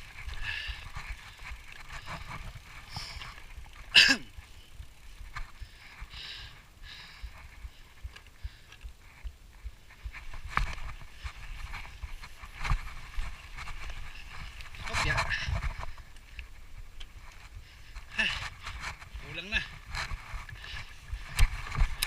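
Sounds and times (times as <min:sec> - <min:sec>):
bikes scuffing and clattering: 0:07.5 - 0:22.0.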